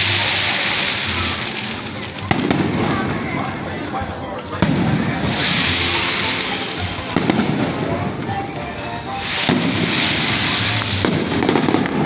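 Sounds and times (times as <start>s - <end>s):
fireworks bangs: 0.0s - 3.8s, 4.6s - 8.4s, 9.2s - 12.0s
fireworks crackling: 0.0s - 12.0s.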